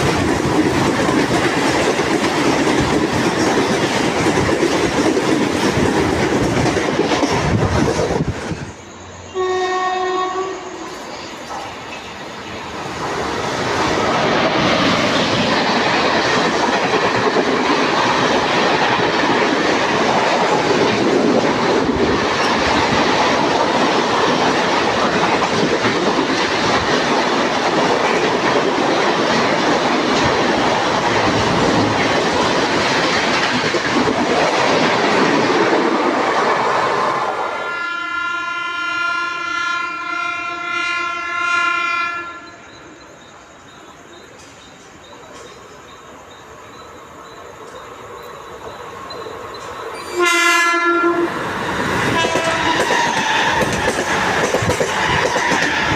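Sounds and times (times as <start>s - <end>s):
train passing at speed: 0.0s - 55.9s
train horn: 9.2s - 11.0s, 37.6s - 42.6s, 50.0s - 51.4s, 52.1s - 53.7s.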